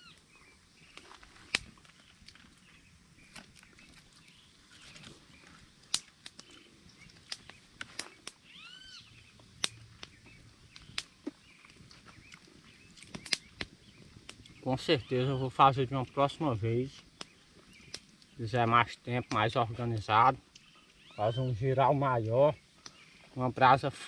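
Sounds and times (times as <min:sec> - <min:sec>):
sharp clicks and snaps: 0:05.9 - 0:08.4, 0:09.6 - 0:11.4, 0:12.3 - 0:14.6, 0:17.0 - 0:18.4
bird calling: 0:06.4 - 0:18.5, 0:19.1 - 0:23.5.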